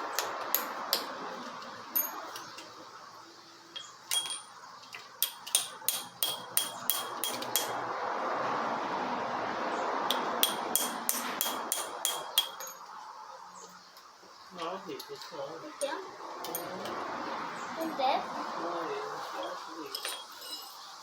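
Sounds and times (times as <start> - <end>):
hammer striking steel punch: 5.2 - 7.8, 10.1 - 12.8.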